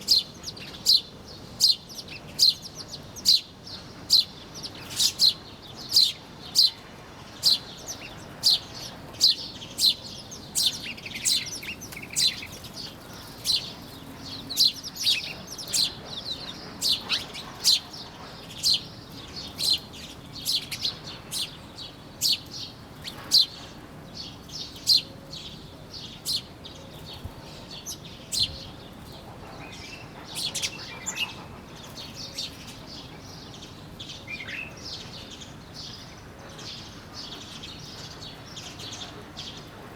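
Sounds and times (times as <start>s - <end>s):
small birds chirping: 0.0s - 39.8s.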